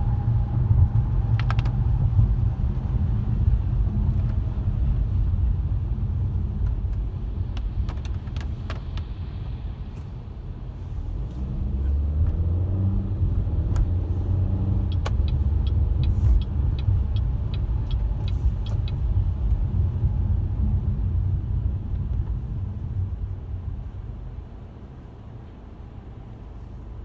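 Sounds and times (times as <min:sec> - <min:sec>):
car road and engine rumble: 0:00.0 - 0:27.0
light ticks: 0:14.8 - 0:19.6.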